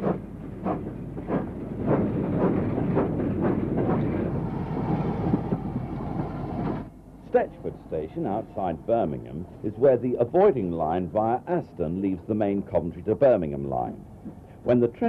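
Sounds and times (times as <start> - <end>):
steam locomotive exhaust chuffs: 0.0 - 7.0
train rumbling on rails: 0.0 - 12.8.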